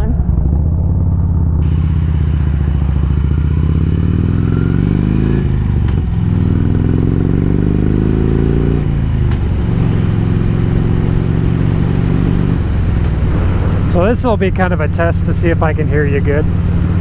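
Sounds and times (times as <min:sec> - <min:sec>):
motorcycle engine accelerating: 0:00.0 - 0:17.0
wind on microphone: 0:08.8 - 0:14.3.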